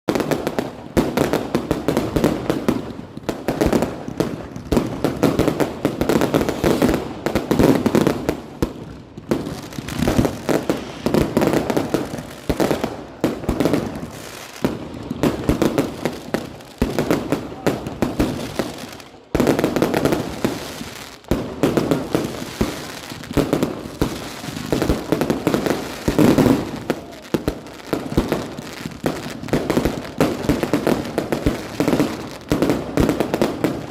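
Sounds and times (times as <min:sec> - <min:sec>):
fireworks bangs and crackling: 0:00.1 - 0:33.9.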